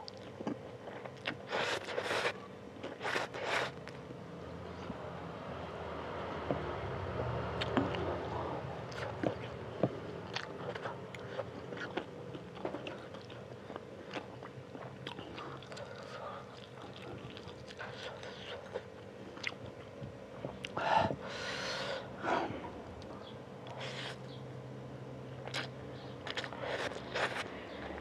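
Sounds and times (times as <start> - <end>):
chewing noodles: 0.0 - 4.0, 10.3 - 20.8, 25.4 - 28.0
faint steady hum: 0.0 - 28.0.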